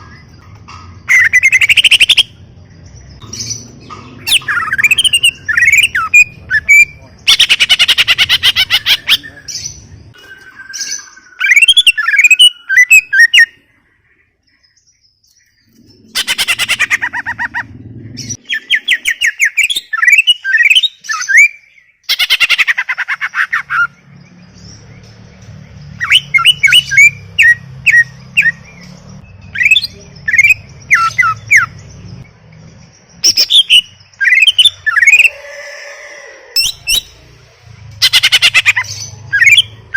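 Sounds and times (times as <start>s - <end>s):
bird singing whistled notes: 3.1s - 13.6s, 17.2s - 22.3s, 23.8s - 35.6s.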